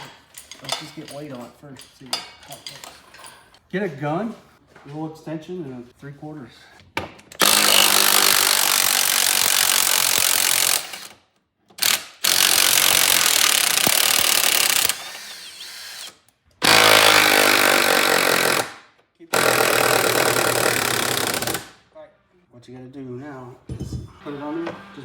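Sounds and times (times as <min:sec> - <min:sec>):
impact wrench hammering on nuts: 0:07.4 - 0:11.2, 0:16.6 - 0:21.8.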